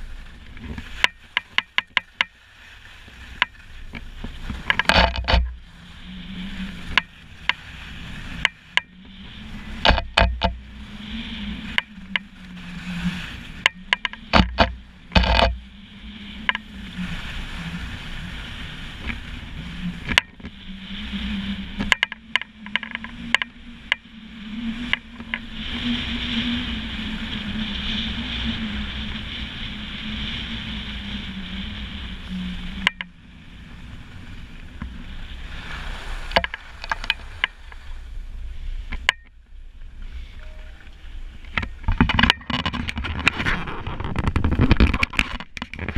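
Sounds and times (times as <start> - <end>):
wavering whistle-like tone: 40.1 - 41.2.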